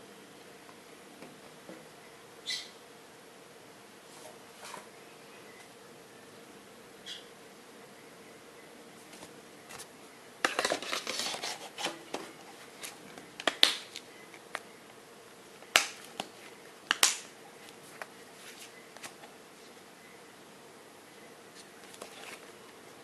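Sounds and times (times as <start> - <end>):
faint steady hum: 0.0 - 23.0
crackly crinkling: 9.1 - 14.7.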